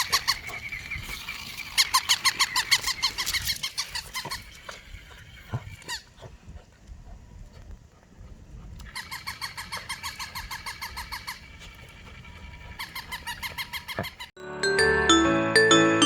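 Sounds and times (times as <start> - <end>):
toy dog high chirping yips: 0.0 - 4.4
music: 14.4 - 16.0.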